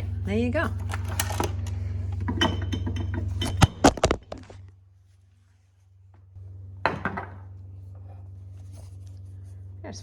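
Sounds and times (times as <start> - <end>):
low steady hum: 0.0 - 10.0
jars and bottles knocking: 2.3 - 3.9.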